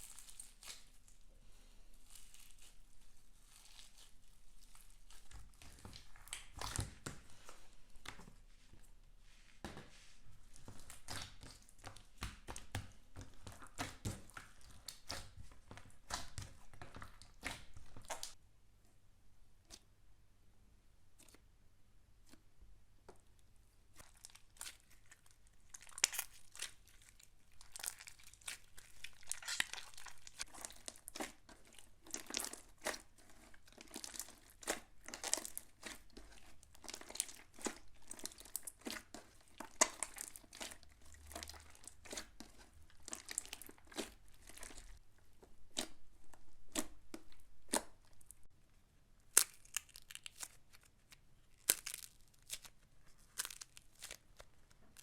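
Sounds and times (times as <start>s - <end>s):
slime popping and crackling: 3.4s - 7.2s, 10.6s - 18.4s, 24.0s - 48.5s, 49.2s - 55.0s.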